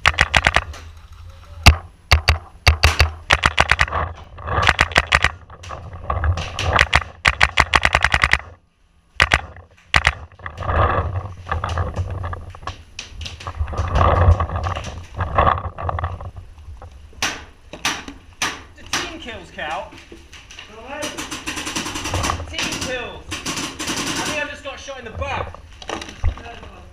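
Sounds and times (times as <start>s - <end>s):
paintball markers firing: 0.0s - 0.8s, 1.7s - 3.9s, 6.4s - 8.6s, 9.2s - 10.2s.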